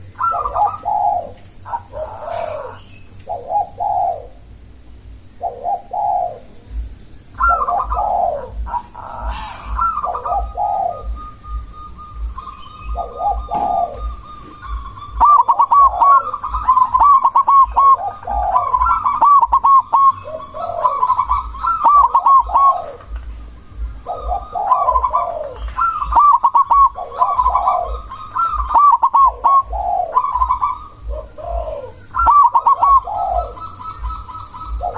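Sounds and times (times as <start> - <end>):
dove cooing: 0.0 - 34.9
faint high-pitched whine: 0.0 - 34.9.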